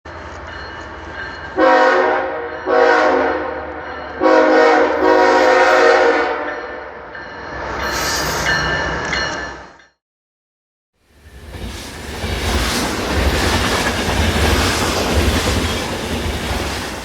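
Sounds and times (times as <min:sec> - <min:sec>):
locomotive air horn blasts: 0:01.6 - 0:06.5.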